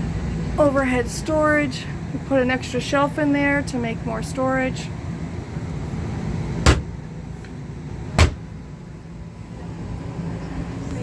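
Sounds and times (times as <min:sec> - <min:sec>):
steady low hum: 0:00.0 - 0:11.0
cabinet door knocking: 0:06.7 - 0:06.9, 0:08.2 - 0:08.4.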